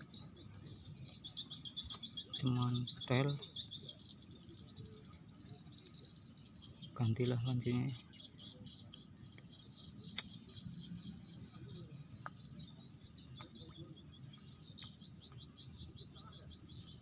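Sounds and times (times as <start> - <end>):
insects chirping: 0.0 - 17.0
sharp click: 10.1 - 10.4.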